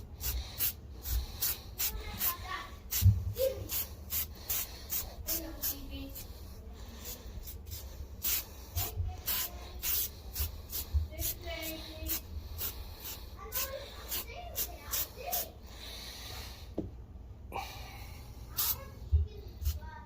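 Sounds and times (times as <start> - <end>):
swishing brush strokes: 0.0 - 15.6.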